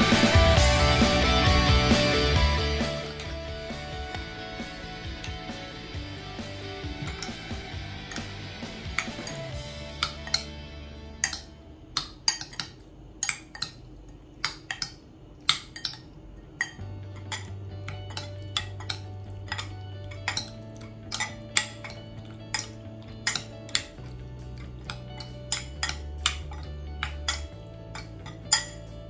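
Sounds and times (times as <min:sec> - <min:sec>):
background music: 0:00.0 - 0:12.6, 0:16.6 - 0:29.0
metal utensil clinking on cookware: 0:07.0 - 0:07.5, 0:14.4 - 0:29.0.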